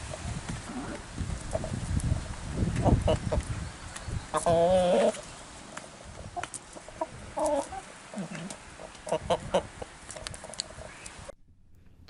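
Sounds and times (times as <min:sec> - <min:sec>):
hens clucking: 0:00.6 - 0:03.5, 0:04.3 - 0:11.0.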